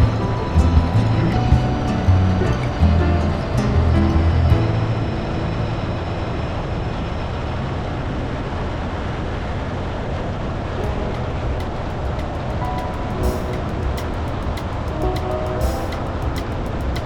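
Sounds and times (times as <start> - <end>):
background music: 0.0 - 6.7, 10.8 - 17.0.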